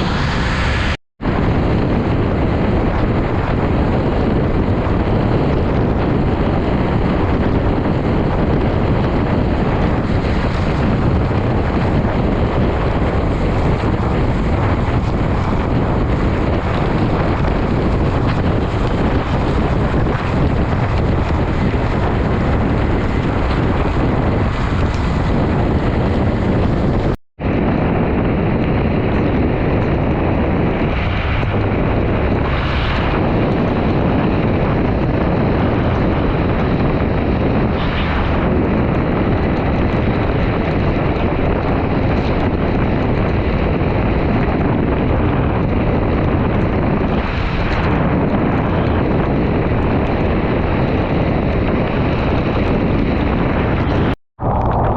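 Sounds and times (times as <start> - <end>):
heavy wind on microphone: 0.0 - 54.9.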